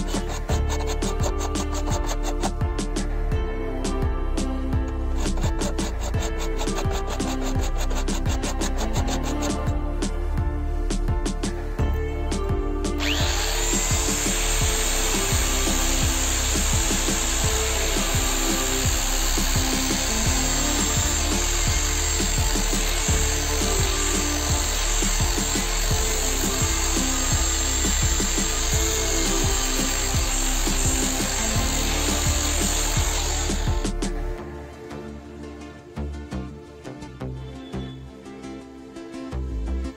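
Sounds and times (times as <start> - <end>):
angle grinder grinding steel: 0.0 - 2.6, 5.1 - 9.8, 13.0 - 33.9
background music: 0.0 - 39.9.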